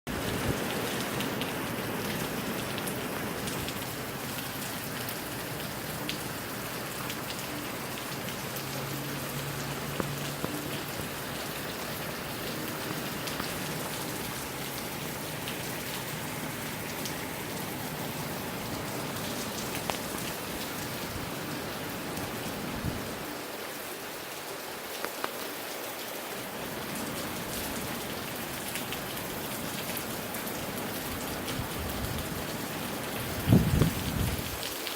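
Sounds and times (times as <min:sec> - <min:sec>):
raindrops ticking: 0:00.1 - 0:21.0
rain falling: 0:00.1 - 0:34.9
gusty wind: 0:22.6 - 0:23.2, 0:33.2 - 0:34.6.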